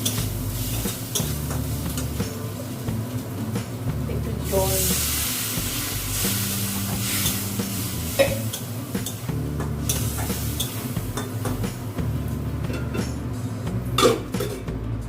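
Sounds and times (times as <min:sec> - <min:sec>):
spices sizzling in hot oil: 0:00.0 - 0:12.6.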